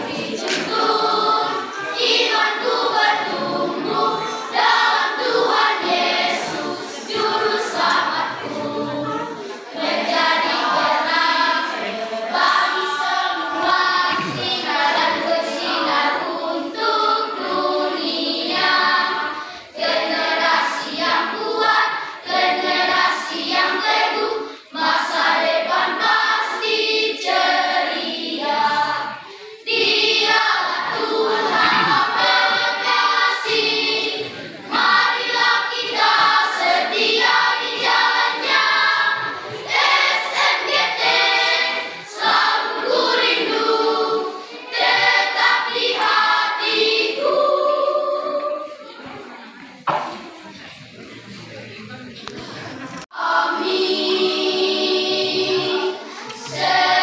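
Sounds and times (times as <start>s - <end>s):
choir singing in harmony: 0.0s - 50.8s, 52.7s - 57.0s.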